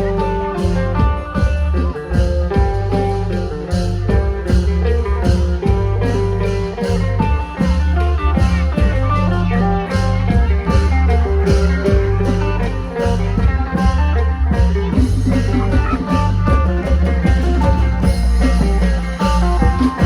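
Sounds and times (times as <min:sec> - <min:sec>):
heavy bass: 0:00.0 - 0:20.0
plucked electric lute melody: 0:00.0 - 0:20.0
steady drum beat: 0:00.0 - 0:20.0.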